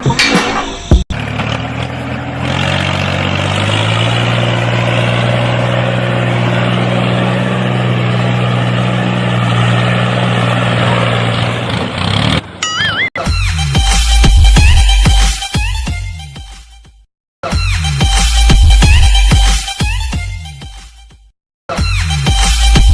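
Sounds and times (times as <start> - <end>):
engine running: 0.0 - 12.6.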